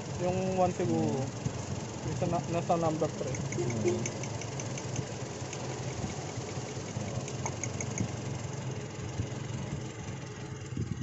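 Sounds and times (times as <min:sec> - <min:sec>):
car engine idling: 0:00.0 - 0:11.0
fast light ticking: 0:03.2 - 0:08.2.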